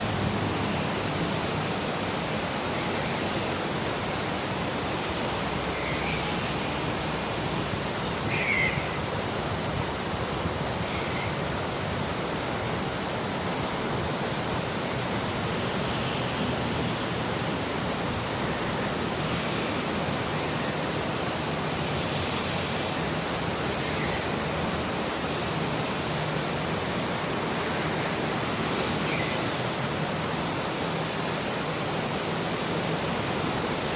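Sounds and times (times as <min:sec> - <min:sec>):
mountain river rushing: 0:00.0 - 0:33.9
gull calls: 0:08.3 - 0:09.0.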